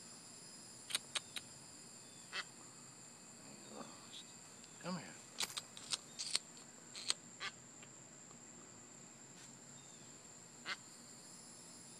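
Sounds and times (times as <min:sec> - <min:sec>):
high-pitched insect trill: 0:00.0 - 0:11.9
short sharp clicks: 0:00.9 - 0:01.5.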